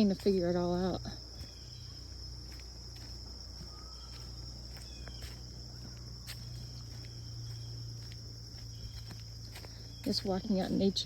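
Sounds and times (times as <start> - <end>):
insects chirring chorus: 0.0 - 11.0
bird chirps: 1.4 - 2.2, 3.5 - 10.8.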